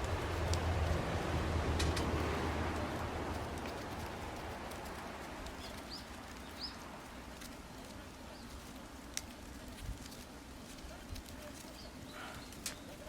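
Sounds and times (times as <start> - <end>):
low rushing noise: 0.0 - 7.4
campfire crackling: 0.0 - 13.0
fire pops: 0.0 - 13.0.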